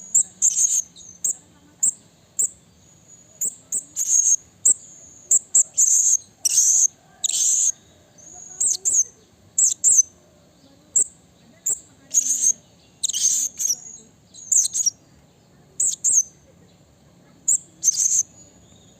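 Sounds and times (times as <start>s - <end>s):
parrot shrill chirps: 3.4s - 7.8s, 8.4s - 10.1s, 11.0s - 15.0s, 17.5s - 18.3s.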